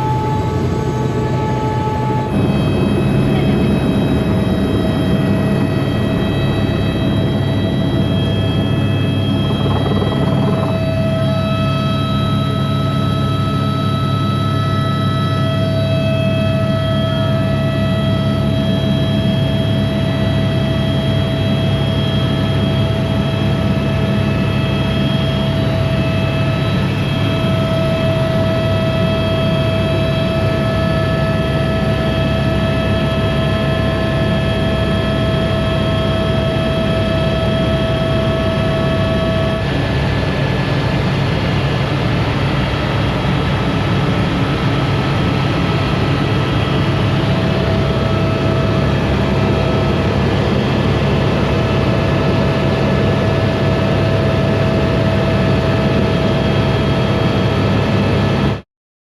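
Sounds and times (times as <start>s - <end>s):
aircraft engine droning: 0.0s - 58.6s
constant whine: 0.0s - 58.6s.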